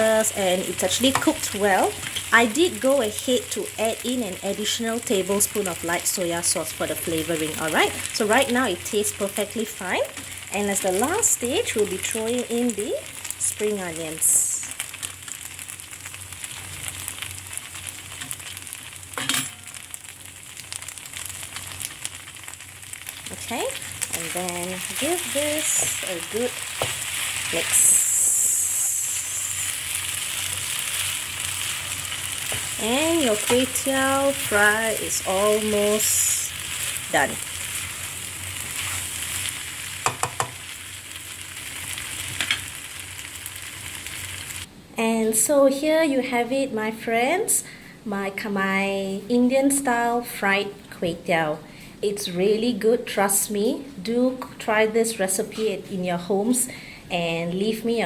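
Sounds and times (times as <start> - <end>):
noodles sizzling in a hot pan: 0.0 - 44.7
scrape in pan: 37.6 - 40.7
spatula knocking pan: 40.0 - 40.7.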